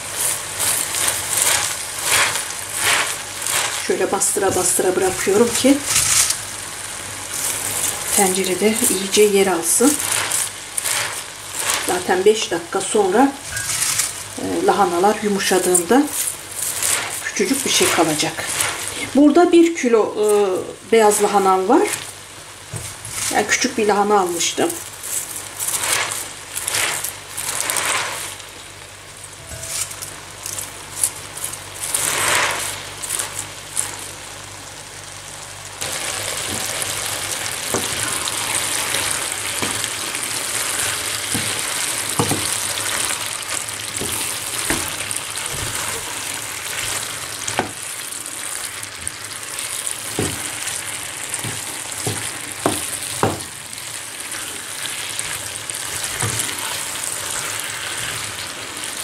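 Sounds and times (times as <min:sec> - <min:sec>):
cabbage rustling: 0:00.0 - 0:06.4, 0:07.3 - 0:22.2, 0:22.8 - 0:28.6, 0:29.2 - 0:34.2, 0:35.8 - 0:59.0
meat and cabbage sizzling: 0:00.0 - 0:59.0
wooden spoon knocking pan: 0:41.3 - 0:42.6, 0:50.1 - 0:50.6, 0:51.4 - 0:53.6.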